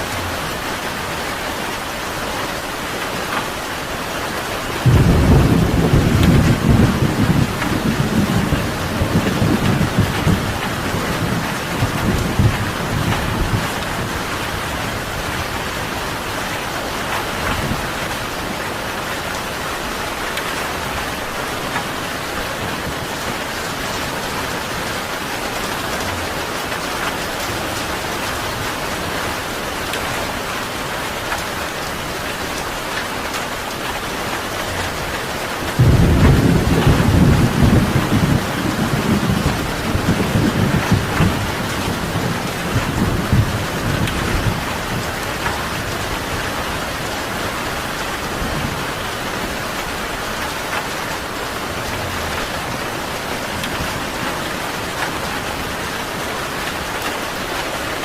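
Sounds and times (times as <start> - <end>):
heavy rain: 0.0 - 58.0
thunder rumbling: 4.8 - 16.5, 35.6 - 56.2.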